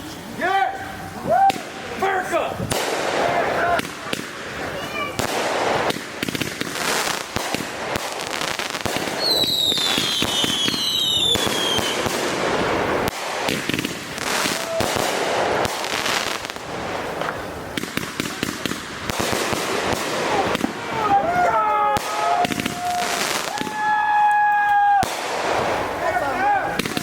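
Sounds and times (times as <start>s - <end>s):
fireworks popping and banging: 1.2s - 27.0s
falling firework whistles: 5.0s - 18.0s, 21.9s - 25.9s.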